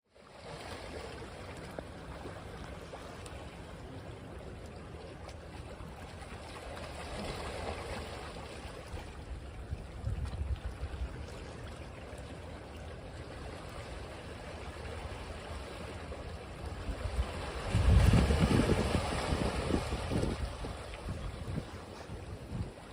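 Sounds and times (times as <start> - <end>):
ocean surf washing on beach: 13.6 - 22.9.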